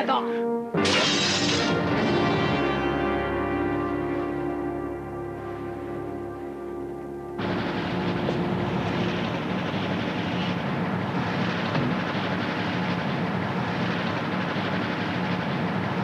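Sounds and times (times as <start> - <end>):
train rumbling rattle: 7.4 - 16.0.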